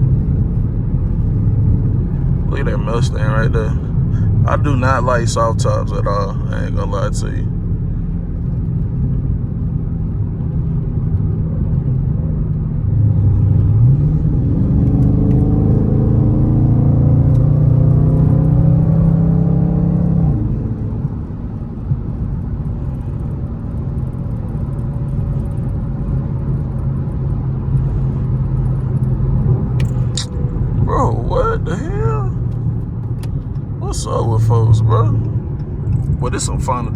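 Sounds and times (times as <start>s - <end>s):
car engine accelerating: 0.0s - 36.9s.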